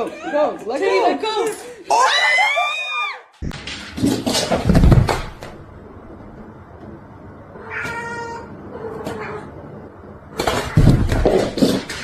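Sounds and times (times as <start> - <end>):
cat meowing: 7.6 - 9.5.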